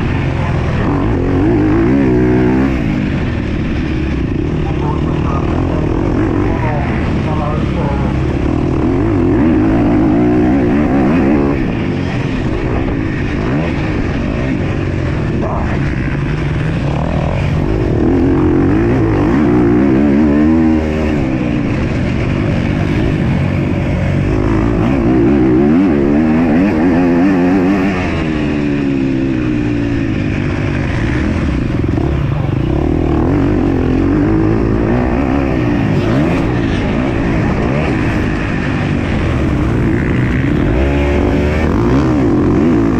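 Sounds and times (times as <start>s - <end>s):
motocross bike engine revving: 0.0s - 42.9s.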